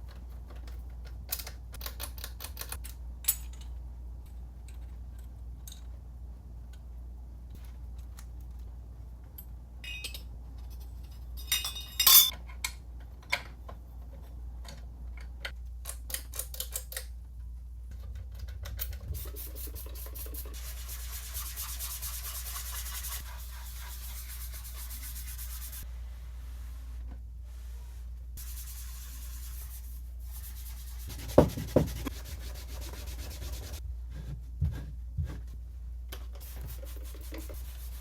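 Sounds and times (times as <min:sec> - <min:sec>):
metal parts clinking and knocking: 0:01.3 - 0:03.8, 0:09.4 - 0:13.5
rubbing of part being wiped: 0:19.1 - 0:35.4, 0:36.4 - 0:38.0.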